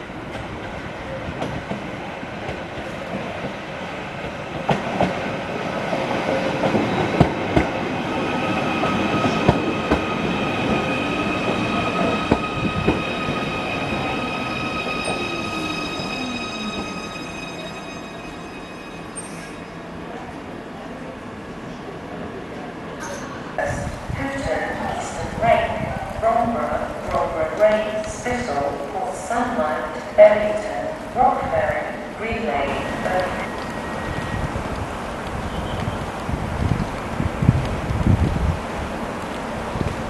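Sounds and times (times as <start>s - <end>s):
high-pitched squeal: 10.9s - 19.9s.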